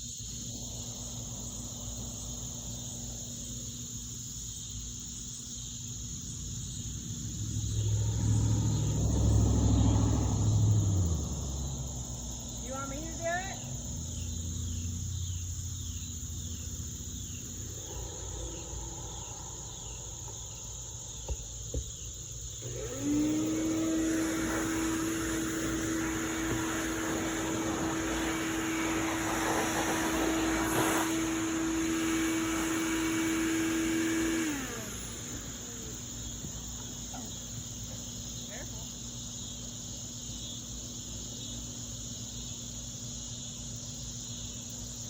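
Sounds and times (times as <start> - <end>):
crickets chirping: 0.0 - 45.0
small electric motor whining: 17.4 - 38.0
rush of air: 24.1 - 32.7.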